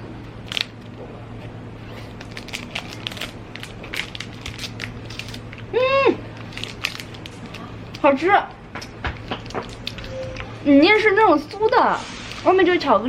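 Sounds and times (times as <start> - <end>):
crunchy snack bar chewing: 2.0 - 8.1, 8.8 - 10.5.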